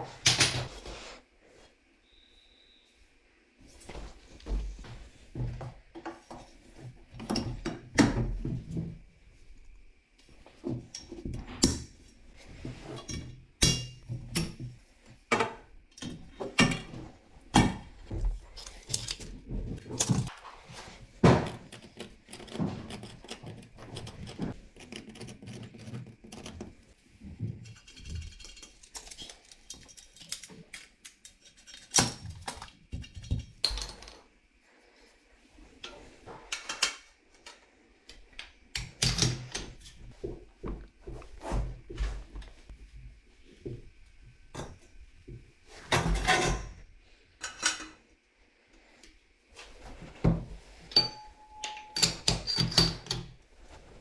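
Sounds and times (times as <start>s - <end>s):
tools and copper pipe clinking: 12.9s - 17.0s, 27.6s - 34.2s, 45.9s - 46.8s, 47.4s - 48.0s, 50.9s - 53.4s.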